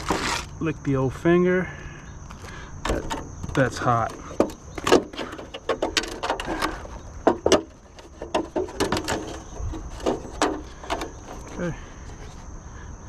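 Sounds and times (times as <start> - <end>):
tools clicking and knocking: 2.8 - 11.6.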